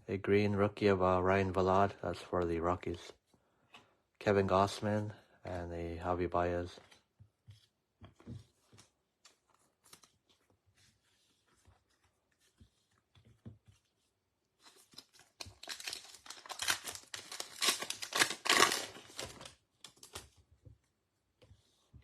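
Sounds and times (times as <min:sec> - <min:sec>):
wrapper rustling: 0:14.6 - 0:20.3
foil wrapper tearing: 0:14.8 - 0:20.2.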